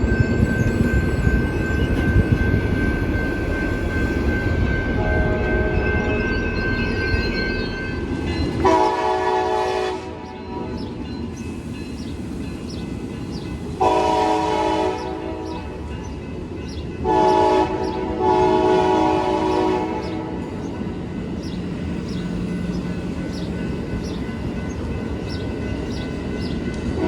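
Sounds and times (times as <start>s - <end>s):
train rumbling past: 0.0s - 27.0s
locomotive air horn blasts: 5.0s - 5.9s, 8.6s - 10.8s, 13.8s - 15.5s, 17.0s - 20.4s.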